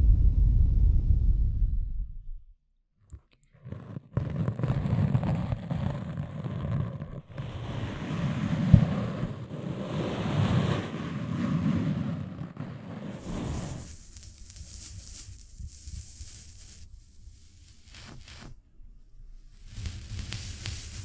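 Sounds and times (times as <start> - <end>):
rushing rustling noise: 6.6 - 16.6.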